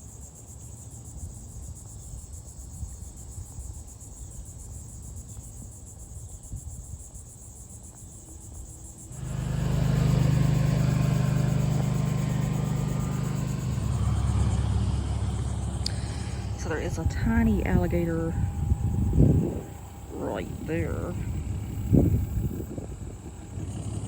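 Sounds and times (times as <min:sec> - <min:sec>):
insects trilling: 0:00.0 - 0:24.0
vehicle engine droning: 0:09.1 - 0:24.0.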